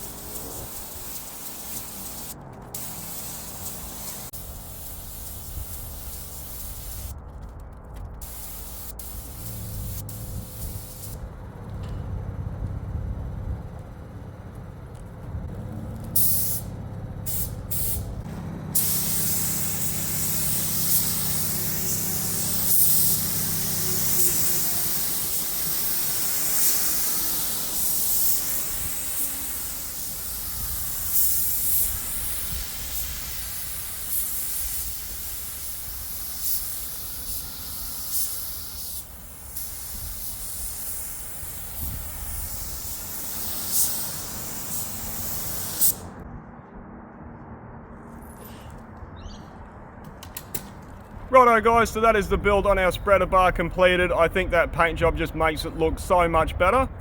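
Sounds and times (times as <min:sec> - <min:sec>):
paint spray gun hissing: 0:00.0 - 0:07.1, 0:08.2 - 0:11.2, 0:16.2 - 0:18.2, 0:18.8 - 0:46.0.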